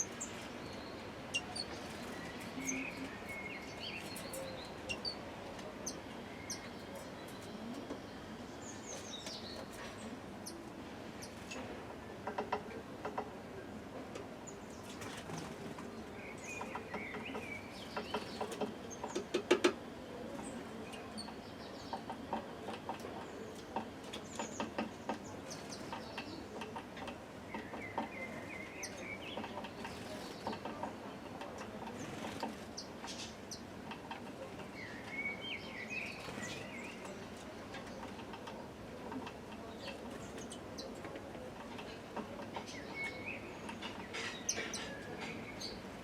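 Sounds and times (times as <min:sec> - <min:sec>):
birds tapping on plastic feeder: 0:16.5 - 0:19.8, 0:21.3 - 0:33.3
bird chirping calls: 0:42.6 - 0:45.9.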